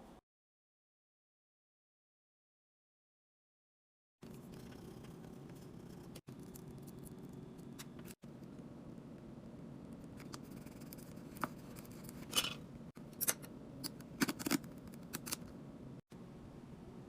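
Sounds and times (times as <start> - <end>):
steady low hum: 4.2 - 17.0.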